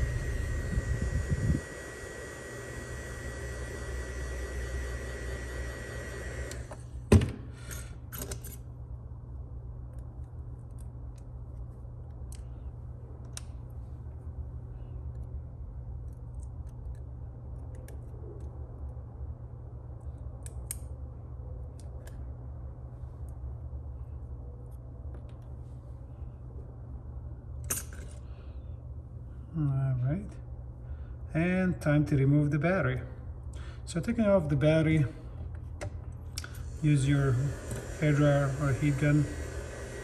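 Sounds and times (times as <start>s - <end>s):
heat gun blowing: 0.0s - 6.8s, 36.4s - 40.0s
low steady hum: 0.0s - 40.0s.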